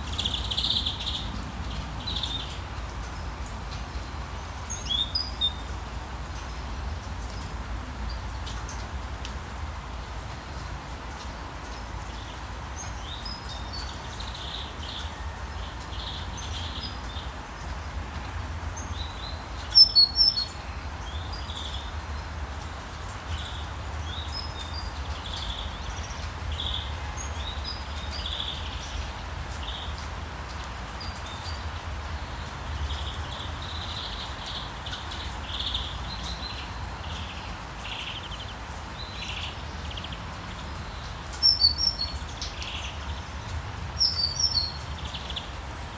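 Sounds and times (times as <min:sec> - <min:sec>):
small birds chirping: 0:00.0 - 0:03.7, 0:18.8 - 0:45.9
rain hiss: 0:00.0 - 0:45.9.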